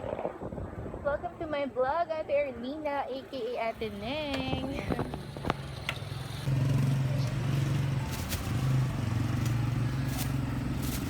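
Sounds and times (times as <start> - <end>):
street noise: 0.0 - 11.0
vehicle engine humming: 3.5 - 11.0.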